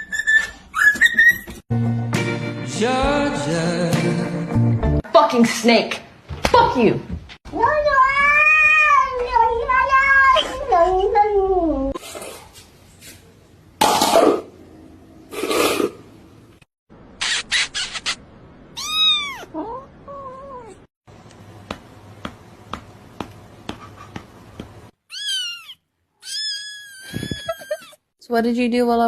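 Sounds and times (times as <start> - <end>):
cats meowing: 18.8 - 20.9, 25.1 - 27.9.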